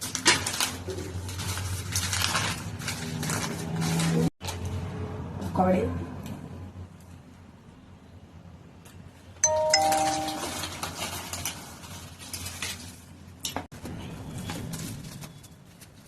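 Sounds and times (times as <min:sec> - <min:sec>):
two-note doorbell chime: 0:09.4 - 0:10.9.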